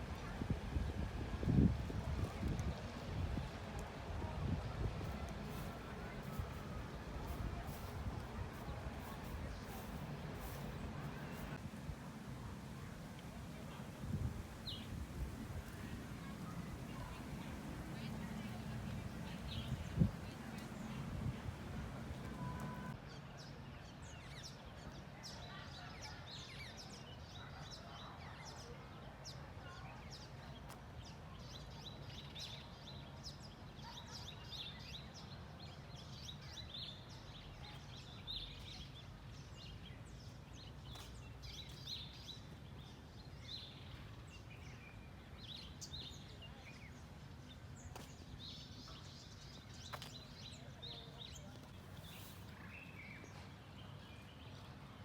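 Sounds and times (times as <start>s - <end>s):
birds chirping: 14.6s - 23.0s.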